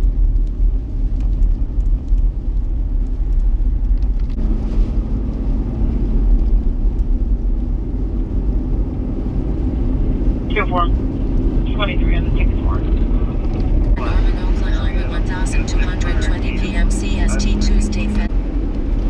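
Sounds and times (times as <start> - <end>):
vehicle rumble: 0.0 - 19.0
wind noise: 0.0 - 19.0
faint steady hum: 11.6 - 18.3.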